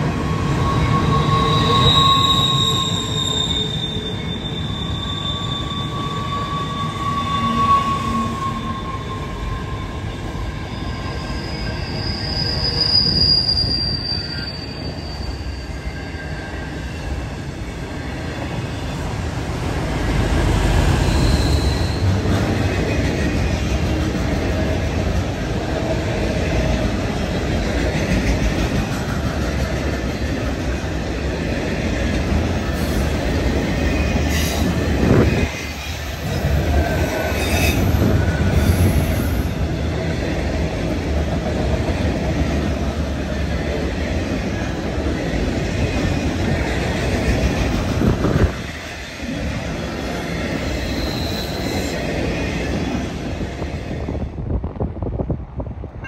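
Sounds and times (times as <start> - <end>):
freight train wheels rumbling: 0.0 - 56.0
high wheel squeals: 0.1 - 18.9, 20.8 - 22.3, 32.8 - 39.7, 50.4 - 52.1.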